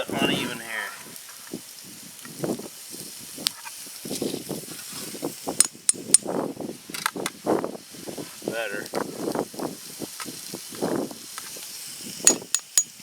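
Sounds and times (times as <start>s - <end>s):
sausage sizzling in a pan: 0.0s - 12.3s
metallic clicks and clinks: 5.6s - 6.3s, 12.3s - 13.0s.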